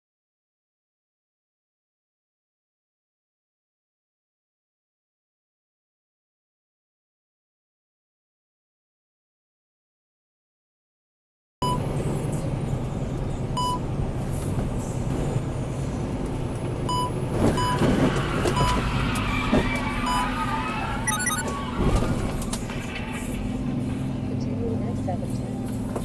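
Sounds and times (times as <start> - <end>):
vehicle engine and road noise: 11.6 - 26.0
short high beeps: 21.1 - 21.4.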